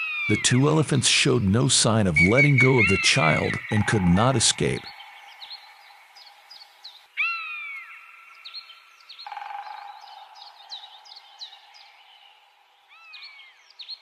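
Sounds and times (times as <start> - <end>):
birds chirping: 0.0 - 14.0
faint steady drone: 2.6 - 7.1.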